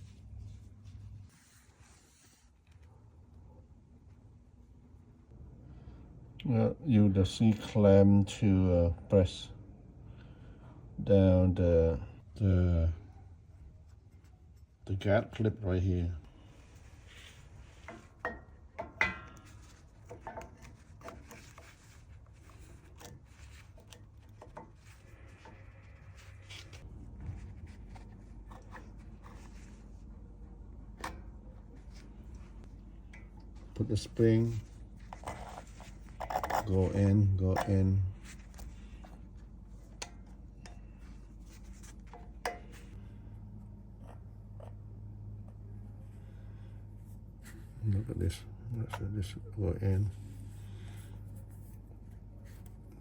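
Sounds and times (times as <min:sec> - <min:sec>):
low steady hum: 0:00.0 - 0:53.0
metal brake parts clicking and tapping: 0:42.0 - 0:43.0.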